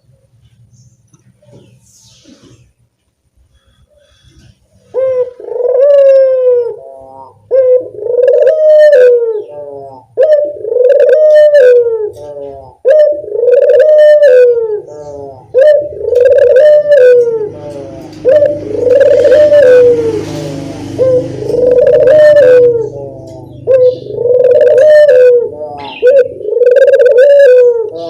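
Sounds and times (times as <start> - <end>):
collared dove cooing: 4.0 - 28.0.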